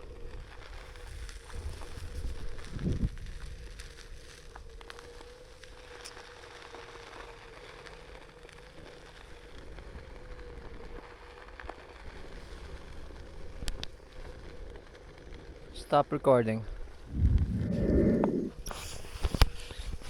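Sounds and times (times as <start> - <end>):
hiss and low rumble: 16.9 - 18.9.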